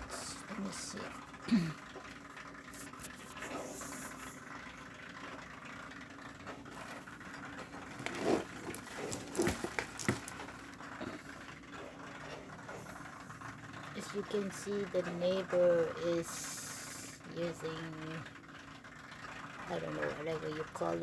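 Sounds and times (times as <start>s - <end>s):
snowblower engine running: 2.6s - 17.0s
knocks and rustles: 6.5s - 11.3s.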